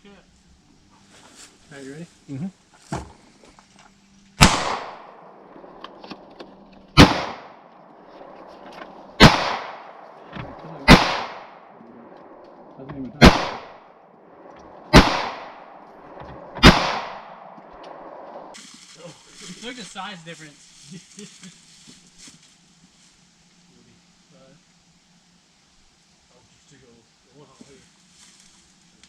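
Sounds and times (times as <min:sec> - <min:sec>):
gunshots with echo: 0:04.4 - 0:05.2, 0:07.0 - 0:07.6, 0:09.2 - 0:10.0, 0:10.8 - 0:11.8, 0:13.2 - 0:13.8, 0:14.9 - 0:17.6.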